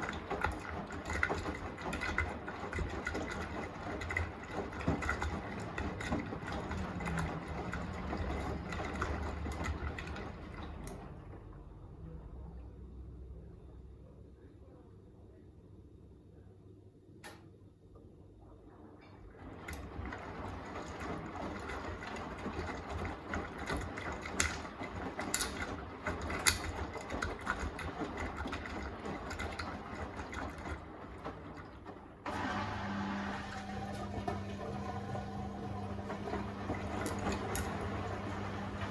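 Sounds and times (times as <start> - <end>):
laundry and water tumbling: 0.0 - 11.7, 19.3 - 38.9
low motor hum: 32.2 - 38.9.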